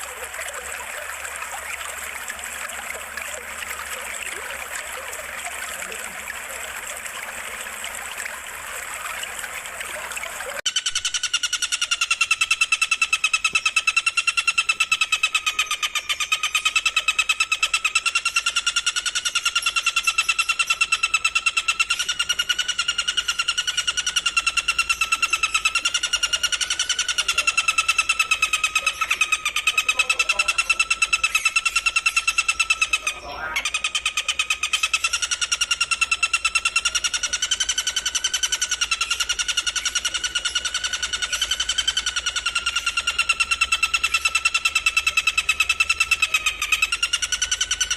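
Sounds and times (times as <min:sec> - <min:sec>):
water trickling: 0:00.0 - 0:10.6, 0:12.0 - 0:47.9
shrill pulsing bird trill: 0:10.7 - 0:47.9.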